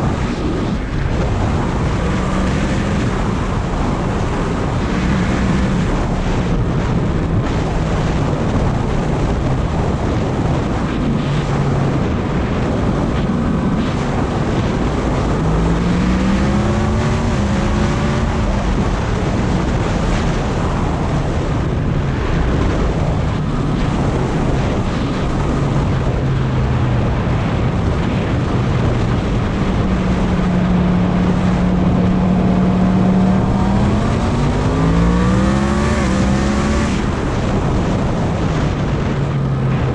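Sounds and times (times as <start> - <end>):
motorcycle engine cruising: 0.0 - 39.9
wind noise on microphone: 0.0 - 39.9.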